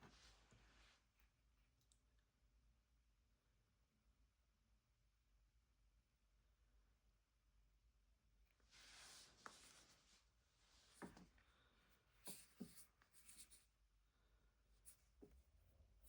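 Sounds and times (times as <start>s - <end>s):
faint rubbing: 12.2s - 13.6s.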